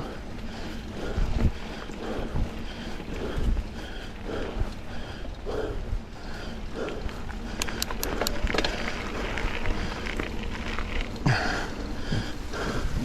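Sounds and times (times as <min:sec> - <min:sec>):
bike tyres rumbling over dirt: 0:00.0 - 0:13.0
rider breathing hard: 0:00.0 - 0:13.0
sharp clicks: 0:07.4 - 0:08.9.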